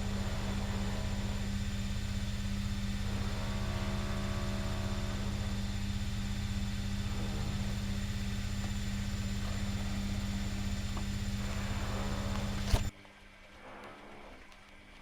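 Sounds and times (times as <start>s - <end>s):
electric motor humming: 0.0s - 12.9s
motor switch click: 6.9s - 12.9s.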